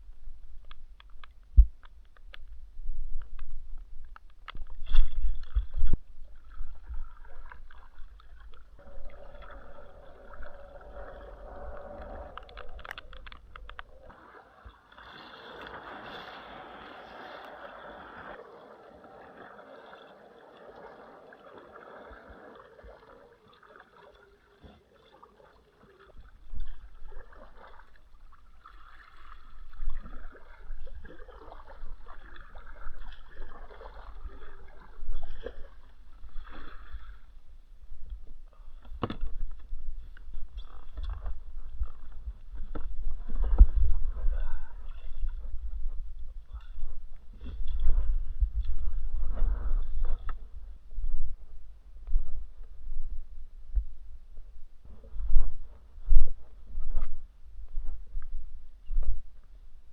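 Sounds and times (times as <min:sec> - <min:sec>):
water sloshing and splashing: 0:00.0 - 0:53.1
knocks and rumbling on microphone: 0:38.0 - 0:59.4.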